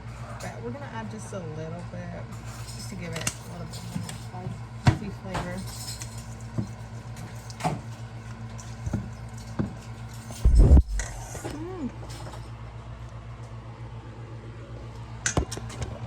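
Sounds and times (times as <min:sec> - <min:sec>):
steady low hum: 0:10.3 - 0:11.8
loud bump: 0:10.4 - 0:11.5.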